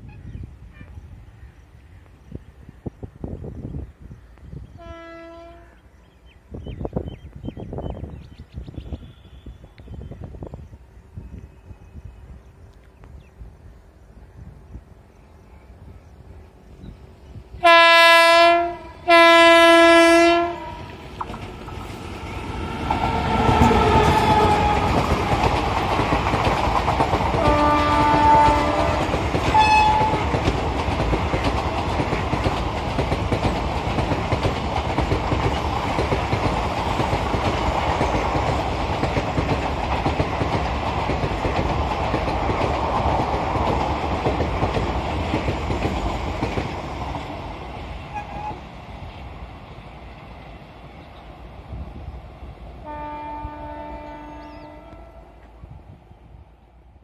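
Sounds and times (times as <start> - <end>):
train horn blasting: 4.7 - 5.9, 17.6 - 21.0, 23.1 - 25.2, 27.3 - 30.4, 52.8 - 55.5.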